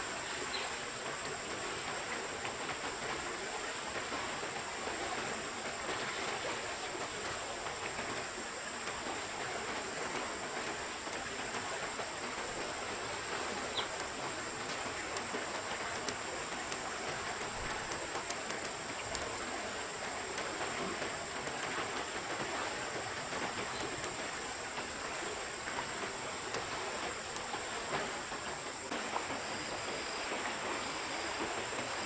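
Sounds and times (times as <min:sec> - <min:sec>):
water noise: 0:00.0 - 0:32.0
faint ticks: 0:00.2 - 0:32.0.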